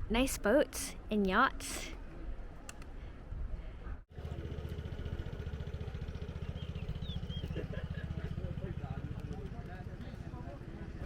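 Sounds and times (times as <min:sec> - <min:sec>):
engine idling: 0:04.1 - 0:11.0.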